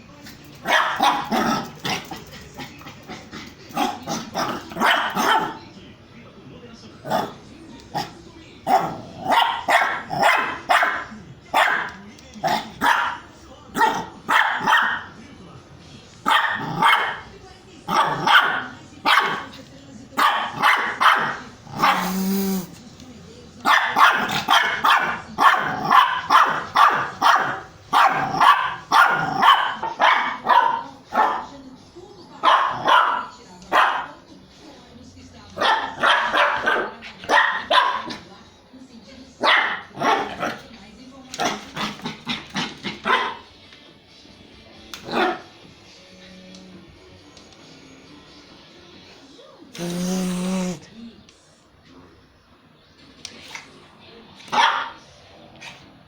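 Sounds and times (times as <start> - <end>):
dog barking: 0.6 - 2.2, 3.7 - 5.6, 8.7 - 15.2, 16.2 - 17.3, 17.9 - 19.6, 20.2 - 22.4, 23.6 - 31.5, 32.4 - 34.2, 35.6 - 38.2, 39.4 - 40.6, 41.4 - 43.5, 45.0 - 45.5, 54.5 - 55.0
hair dryer running: 49.8 - 50.8.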